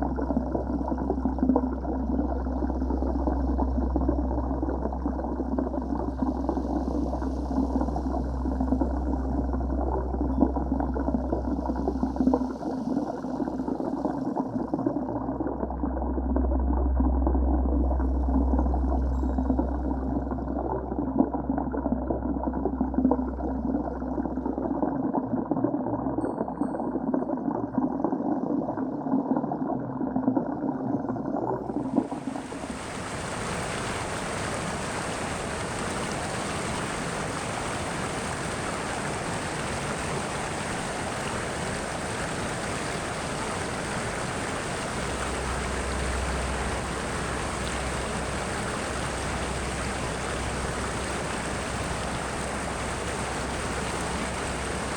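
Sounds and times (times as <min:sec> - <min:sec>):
muffled churning water: 0:00.0 - 0:54.9
rushing water hiss: 0:32.0 - 0:54.9.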